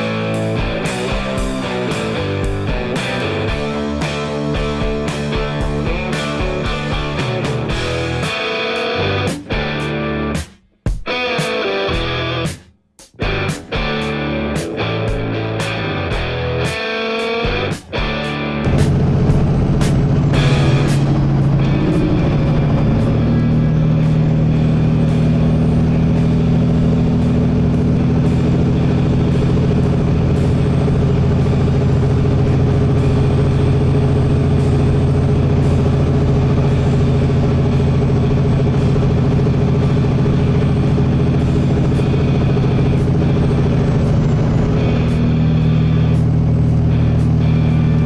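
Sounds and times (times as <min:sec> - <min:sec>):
low engine drone: 0:00.0 - 0:10.4, 0:17.5 - 0:48.0
road noise: 0:18.6 - 0:48.0.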